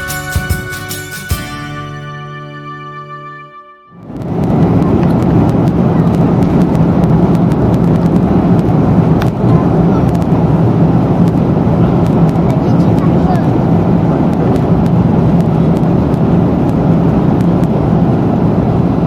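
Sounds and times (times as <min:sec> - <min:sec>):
music: 0:00.0 - 0:04.1
airliner cabin engine rush: 0:04.1 - 0:19.0.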